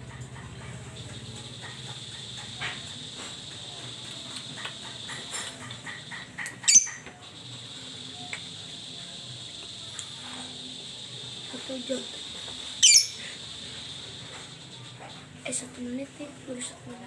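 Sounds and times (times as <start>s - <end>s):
steady high-pitched buzz: 0.0s - 17.0s
lovebird chirping: 6.0s - 7.1s, 12.7s - 14.0s
bird shrill screech: 12.8s - 13.3s.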